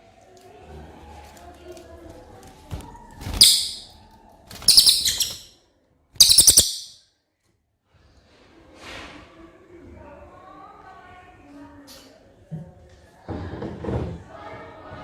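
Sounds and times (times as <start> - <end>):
songbird singing high-pitched notes: 3.4 - 3.9, 4.6 - 5.5, 6.2 - 7.0.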